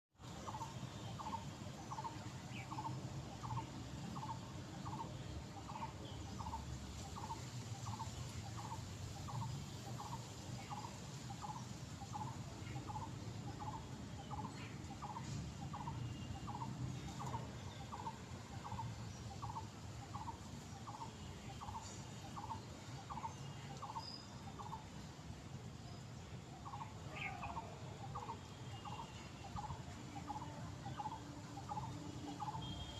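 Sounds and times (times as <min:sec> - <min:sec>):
other birds chirping: 0:00.5 - 0:24.9.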